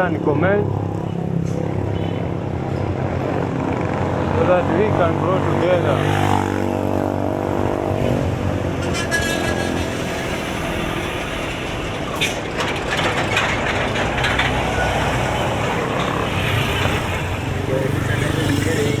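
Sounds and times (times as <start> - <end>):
street traffic noise: 0.0 - 19.0
short clacks and knocks: 12.2 - 17.2.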